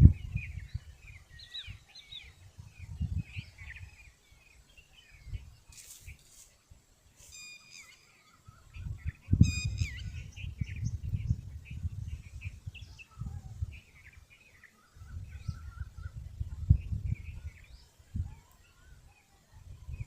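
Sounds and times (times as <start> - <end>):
wind buffeting microphone: 0.0 - 6.2, 8.4 - 20.0
sharp bright bird call: 7.2 - 8.4
small bird chirps: 7.2 - 20.0.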